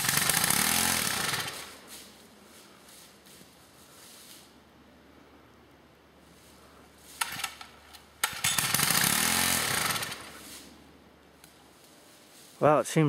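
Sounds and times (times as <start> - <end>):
small gasoline engine pull-started: 0.0 - 1.8, 7.2 - 10.4.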